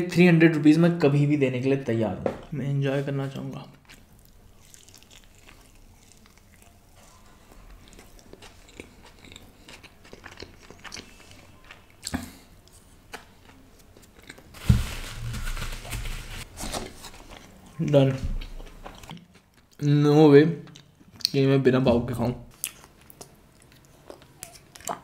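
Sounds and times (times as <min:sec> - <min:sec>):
close-miked chewing: 0:03.7 - 0:14.5, 0:22.5 - 0:25.0.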